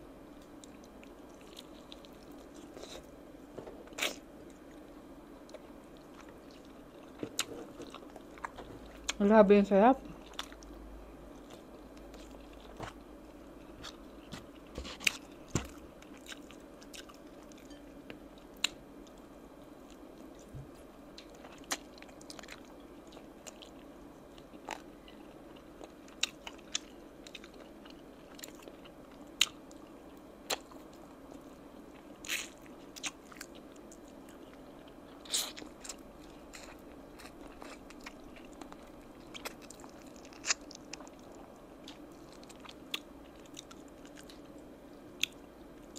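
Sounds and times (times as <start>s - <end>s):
faint steady hum: 0.0s - 45.9s
person chewing: 0.5s - 3.2s, 3.8s - 9.2s, 10.1s - 20.5s, 21.2s - 44.6s.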